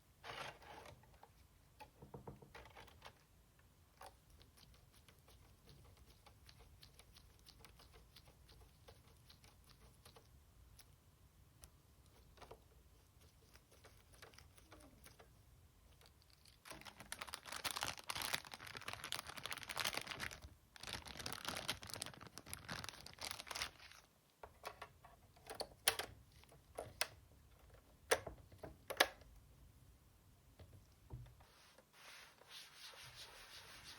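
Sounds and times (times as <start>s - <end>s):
scraping and rustling plastic: 16.0s - 24.1s.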